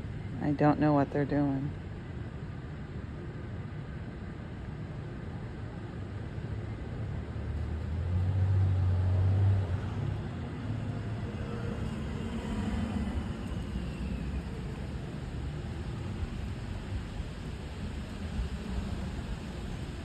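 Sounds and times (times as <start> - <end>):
traffic noise: 0.0 - 20.0
vehicle engine passing by: 7.4 - 15.4.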